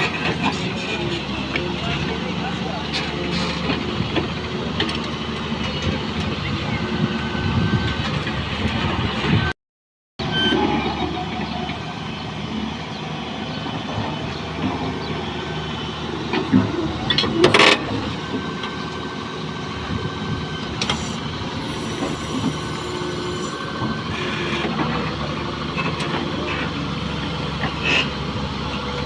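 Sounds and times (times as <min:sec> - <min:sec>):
excavator diesel engine running: 0:00.0 - 0:09.5, 0:10.2 - 0:29.0.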